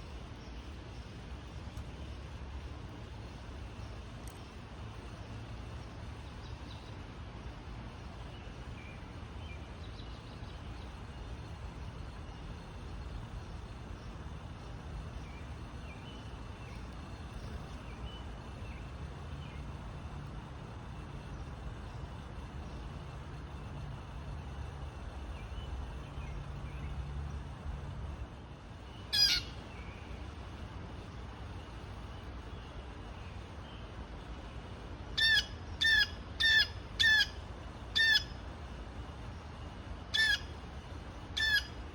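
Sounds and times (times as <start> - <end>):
steady low rumble: 0.0 - 41.9
small birds chirping: 8.1 - 20.2
harsh blue jay call: 29.1 - 29.6, 35.2 - 38.4, 40.1 - 40.6, 41.4 - 41.8.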